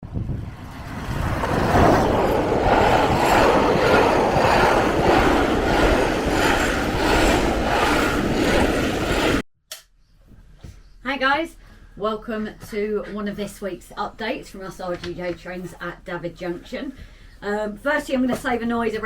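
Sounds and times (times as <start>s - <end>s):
train rumbling: 0.0s - 9.4s.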